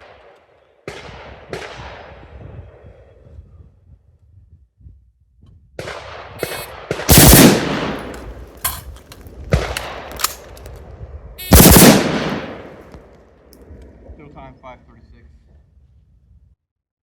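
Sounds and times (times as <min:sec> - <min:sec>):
gunshots with echo: 0:05.9 - 0:08.9, 0:11.4 - 0:13.0.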